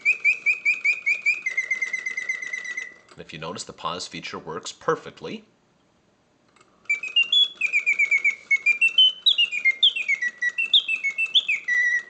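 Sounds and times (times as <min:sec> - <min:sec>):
mechanical bird song whistling: 0:00.0 - 0:03.1, 0:06.8 - 0:12.0.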